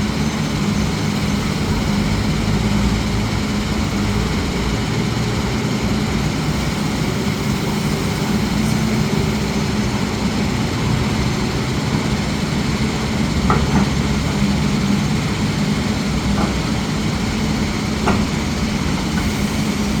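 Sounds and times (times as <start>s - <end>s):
diesel machinery engine running: 0.0s - 20.0s
metal clanks: 13.3s - 14.8s.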